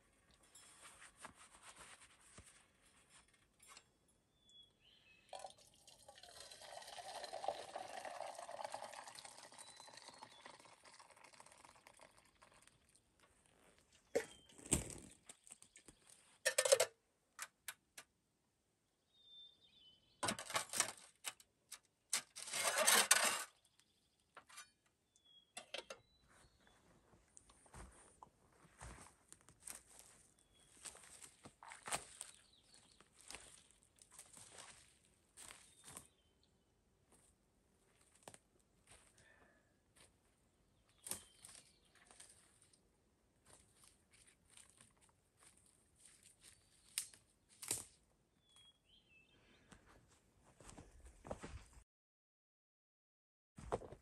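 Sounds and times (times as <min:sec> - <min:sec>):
water pouring: 0:05.3 - 0:13.1.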